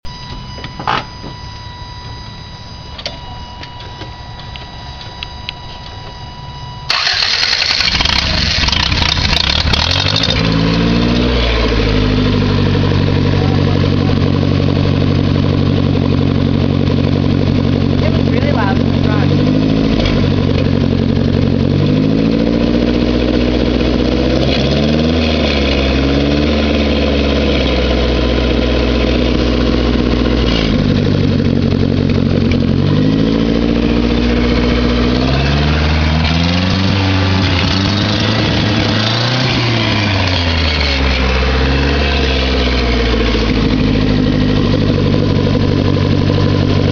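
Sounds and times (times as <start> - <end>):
car engine revving: 6.9 - 46.9.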